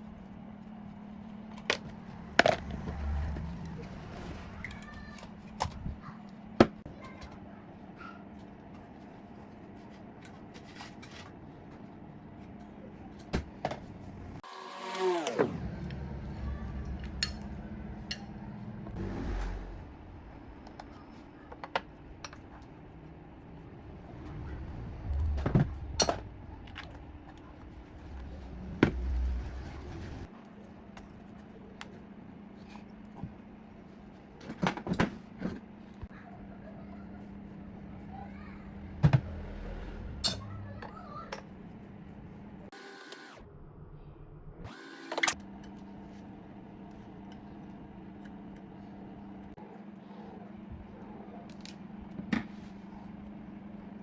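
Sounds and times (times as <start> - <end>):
steady low hum: 15.5 - 42.8, 43.4 - 54.0
low thuds: 23.7 - 30.3.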